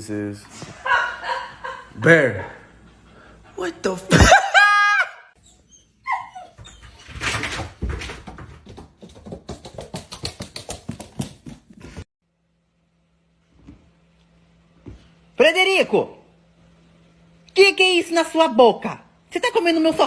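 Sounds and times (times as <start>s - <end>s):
dog whining: 5.4s - 7.2s
rapid clicking and scuffling: 6.9s - 12.0s.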